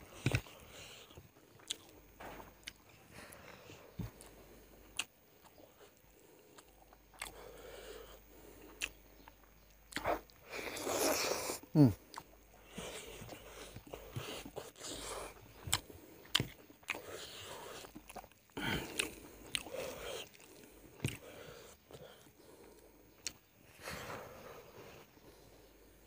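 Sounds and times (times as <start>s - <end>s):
man chewing and lip-smacking: 0.2s - 2.0s, 2.6s - 2.8s, 4.0s - 7.4s, 8.5s - 23.5s.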